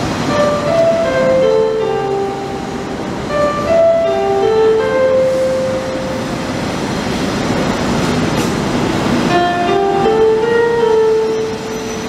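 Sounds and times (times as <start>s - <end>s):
melody of single notes: 0.0s - 6.6s, 9.3s - 12.0s
train wheels rushing on rails: 0.0s - 12.0s.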